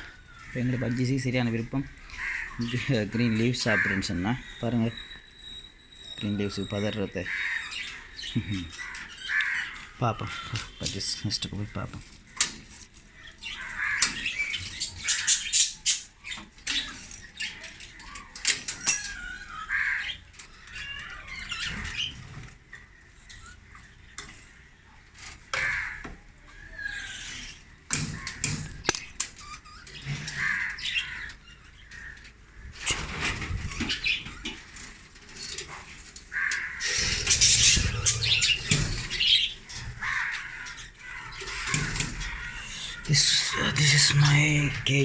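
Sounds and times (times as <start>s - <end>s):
budgerigars chattering and squawking: 0.0s - 45.0s
sharp clicks and knocks: 27.9s - 29.4s
wings fluttering: 32.0s - 43.3s.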